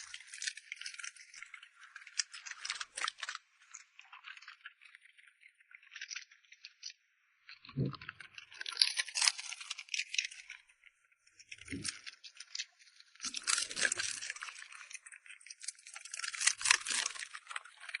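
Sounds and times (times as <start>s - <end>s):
dog eating with wet crunching: 13.2s - 15.4s, 16.0s - 18.0s.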